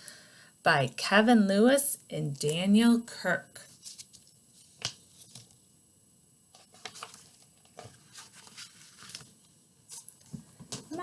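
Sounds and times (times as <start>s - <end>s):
pages turning: 3.7s - 5.6s, 6.6s - 10.9s
paper rustling: 3.7s - 5.6s, 6.6s - 11.0s.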